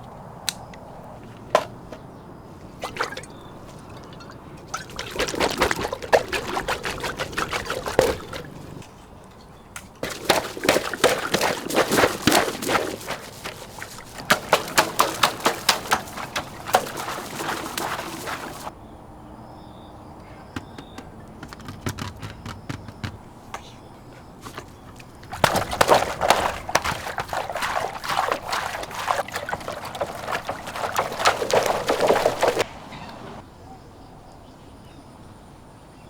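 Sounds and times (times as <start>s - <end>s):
water pouring and splashing: 2.7s - 18.7s, 24.4s - 32.7s.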